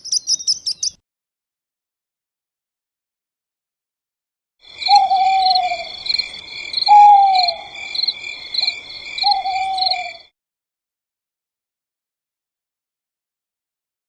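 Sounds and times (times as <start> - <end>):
high pulsing insect chorus: 4.7 - 10.3
animal calling: 4.8 - 10.3.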